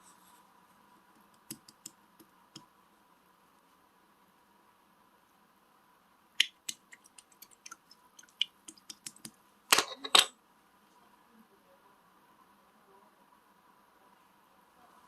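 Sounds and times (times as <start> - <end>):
slime squishes: 6.4 - 9.4.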